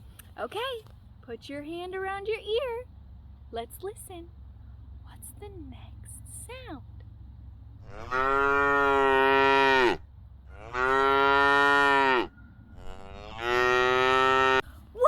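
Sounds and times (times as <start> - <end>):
cow mooing: 7.8 - 14.6.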